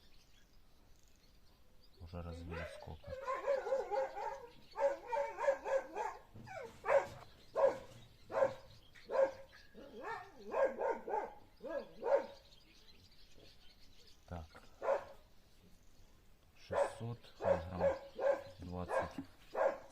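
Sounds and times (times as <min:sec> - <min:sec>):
dog barking: 0:02.4 - 0:12.5, 0:14.8 - 0:15.2, 0:16.7 - 0:19.9.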